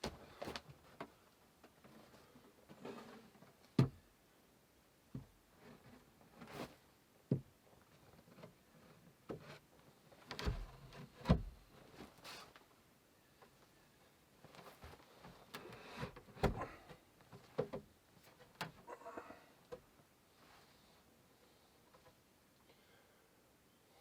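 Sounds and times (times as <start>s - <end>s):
knocks and clunks of wood: 3.8s - 4.0s, 7.3s - 7.6s, 10.3s - 12.2s, 15.6s - 18.8s
scrapes and rustles: 5.6s - 6.9s, 14.4s - 16.4s.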